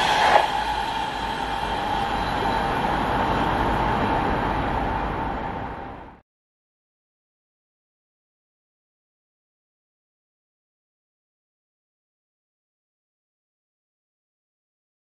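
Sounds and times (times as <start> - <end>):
faint high whine: 0.0 - 6.2
train wheels rumbling on track: 0.0 - 6.2.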